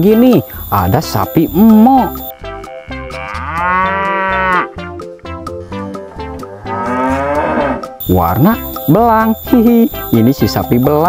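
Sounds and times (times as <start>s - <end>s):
background music: 0.0s - 11.0s
cow mooing: 2.3s - 4.8s, 6.0s - 8.0s.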